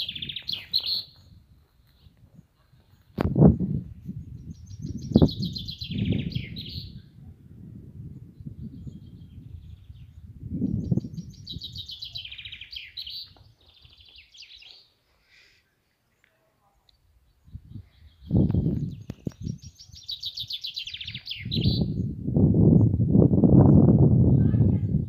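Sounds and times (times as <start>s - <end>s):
songbird singing high notes: 0.0s - 1.3s, 4.3s - 7.1s, 8.4s - 14.8s, 17.6s - 22.2s.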